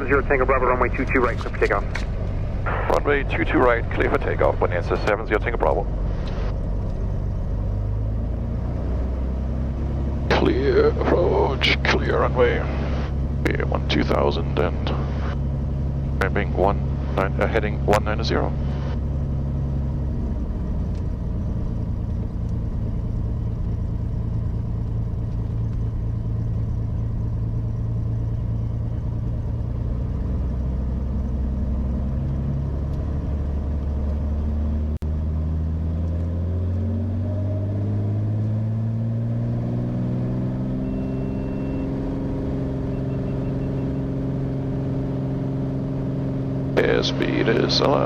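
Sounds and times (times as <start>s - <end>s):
propeller plane engine running: 0.0s - 48.0s
short high beep: 40.8s - 42.0s.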